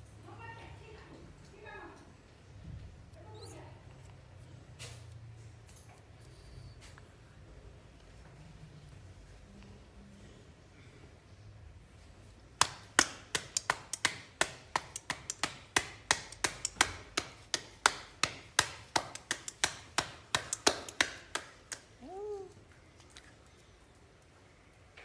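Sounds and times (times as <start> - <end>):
rhythmic sharp taps: 12.6 - 21.8.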